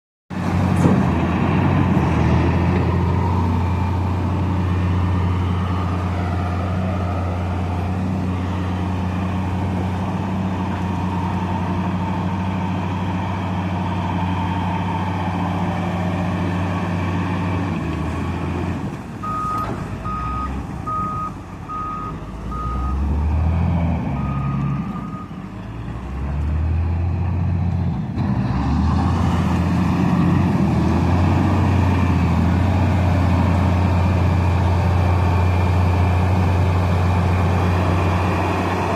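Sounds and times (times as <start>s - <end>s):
diesel engine running: 0.3s - 38.9s
reversing alarm beeping: 19.2s - 23.1s, 24.1s - 25.4s.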